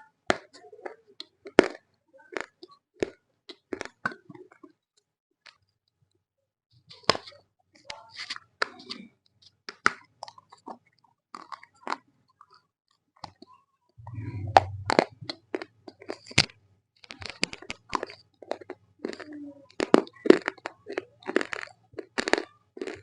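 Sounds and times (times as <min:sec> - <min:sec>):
crunching and chewing clay: 0:00.3 - 0:04.8, 0:08.0 - 0:13.5, 0:15.0 - 0:23.0
low hum: 0:14.0 - 0:15.3.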